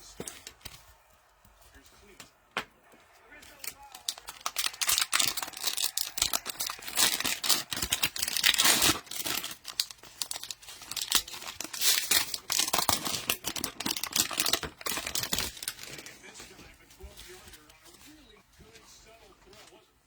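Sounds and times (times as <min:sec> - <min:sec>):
cellophane wrappers tearing and crinkling: 0:03.4 - 0:16.4.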